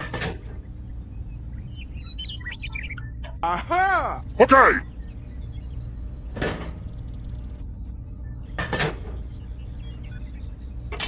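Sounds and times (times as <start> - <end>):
steady low hum: 0.0 - 11.0
short clunks: 5.1 - 11.0.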